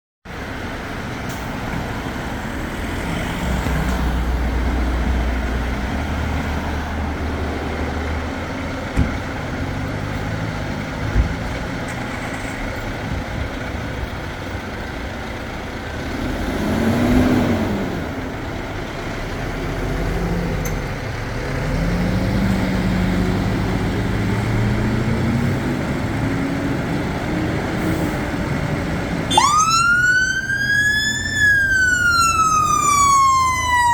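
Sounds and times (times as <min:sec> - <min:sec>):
diesel engines accelerating: 0:00.3 - 0:33.9
siren wailing: 0:29.3 - 0:33.9.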